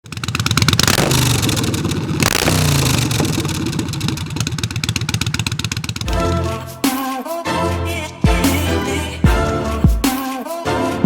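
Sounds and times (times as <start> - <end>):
engine revving: 0.0 - 6.8.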